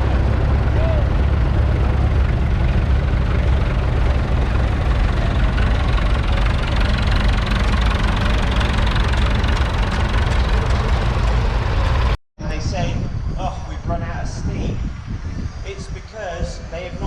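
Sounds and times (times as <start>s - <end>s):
diesel tractor engine running: 0.0s - 12.2s.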